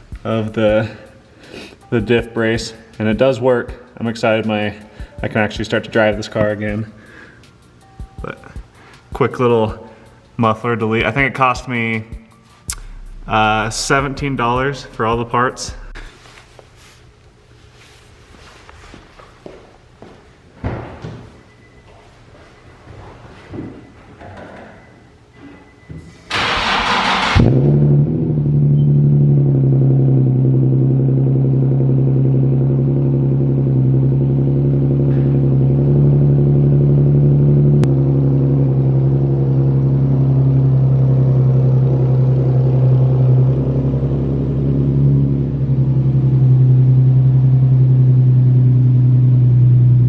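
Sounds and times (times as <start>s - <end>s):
car engine idling with deep drone: 0.0s - 8.6s, 9.3s - 16.4s, 26.3s - 50.0s
engine cranking: 26.3s - 27.8s.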